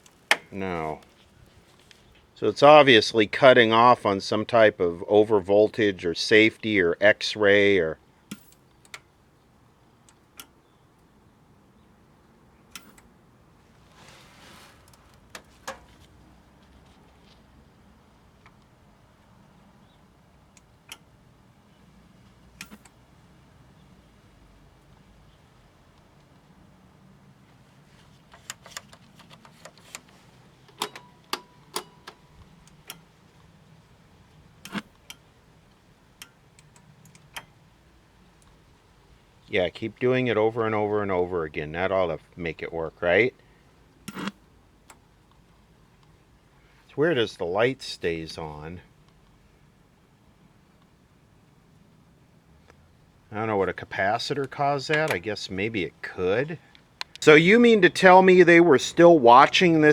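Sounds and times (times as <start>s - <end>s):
faint steady hum: 0.0s - 59.9s
soft hiss: 0.0s - 59.9s
tv switch clicks and knocks: 30.7s - 33.1s.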